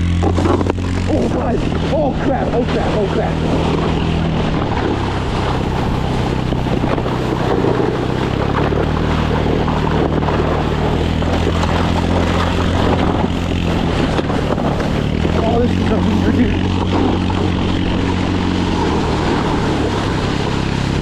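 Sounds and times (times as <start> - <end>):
dense rushing noise: 0.0 - 21.0
vehicle engine running: 0.0 - 21.0.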